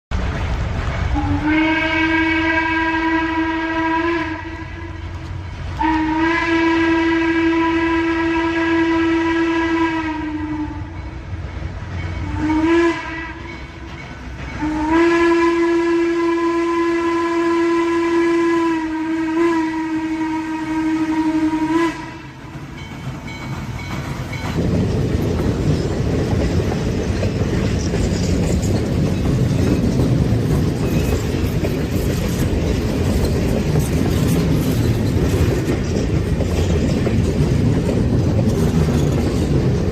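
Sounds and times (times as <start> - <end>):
train rumble: 0.1 - 39.9
train horn blasts: 1.1 - 11.2, 12.2 - 13.9, 14.6 - 22.5.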